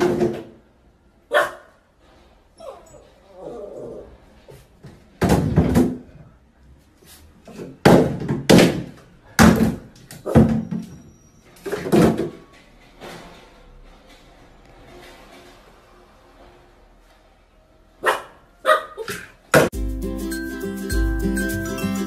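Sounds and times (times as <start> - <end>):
plastic bottles clattering into tub: 0.0 - 0.7, 5.0 - 6.1, 7.5 - 10.9, 11.6 - 12.5.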